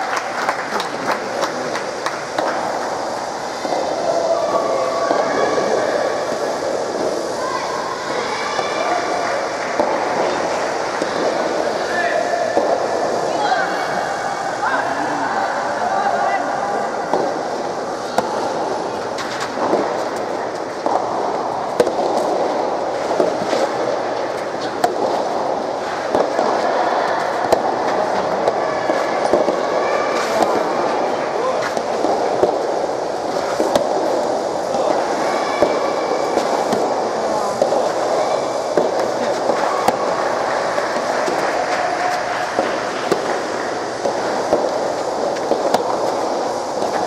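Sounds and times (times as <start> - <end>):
crowd murmur: 0.0 - 47.0
steady venue background noise: 0.0 - 47.0
rackets hitting rubber ball: 8.6 - 13.3, 17.0 - 47.0.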